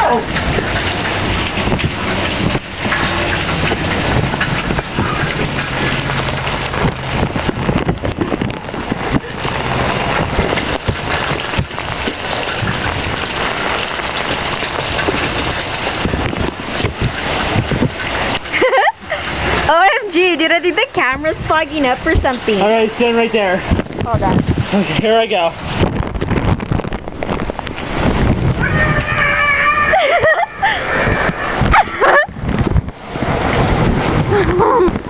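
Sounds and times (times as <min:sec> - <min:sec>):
raindrops crackling clicks: 0:00.0 - 0:29.2, 0:29.9 - 0:35.0
rain falling: 0:00.0 - 0:35.0.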